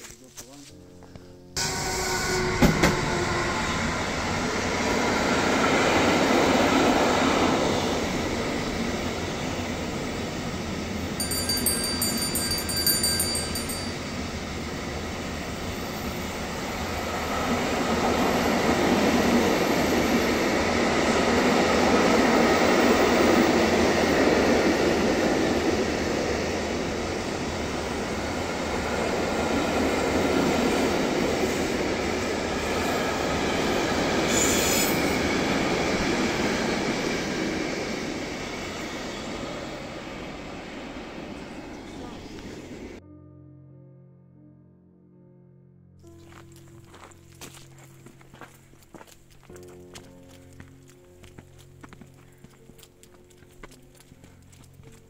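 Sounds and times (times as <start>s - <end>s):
train wheels rumbling on track: 1.6s - 43.0s
high wheel squeal: 34.2s - 35.6s.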